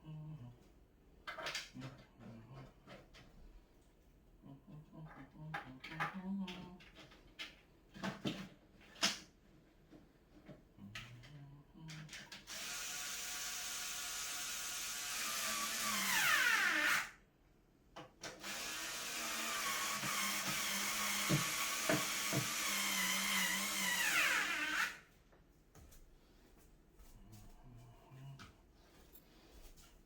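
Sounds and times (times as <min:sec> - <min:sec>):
power drill driving screws: 0:12.5 - 0:17.2, 0:18.4 - 0:25.0.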